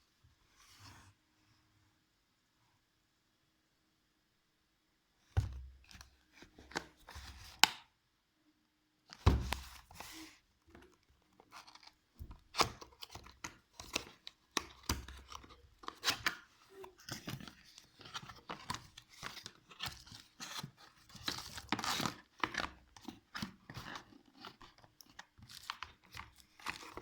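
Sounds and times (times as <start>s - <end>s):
packaging rustling: 11.4s - 27.0s.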